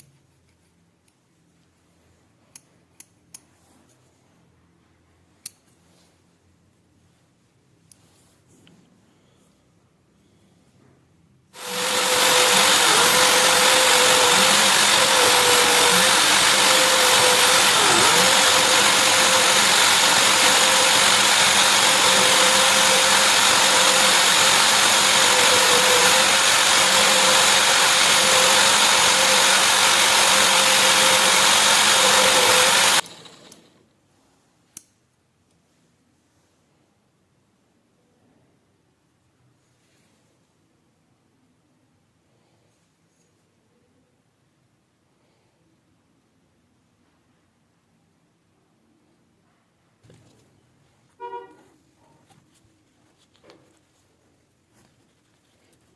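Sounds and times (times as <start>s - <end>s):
electric power tool running: 11.6s - 33.7s.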